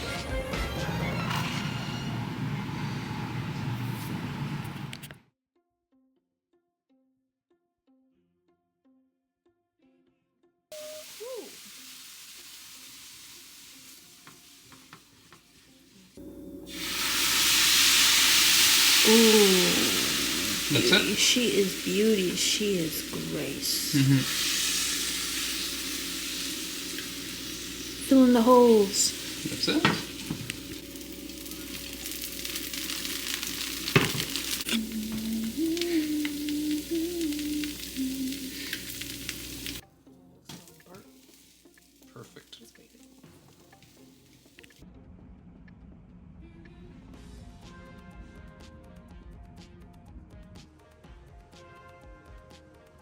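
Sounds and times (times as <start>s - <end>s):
food sizzling in a pan: 10.7s - 39.9s, 40.5s - 44.8s.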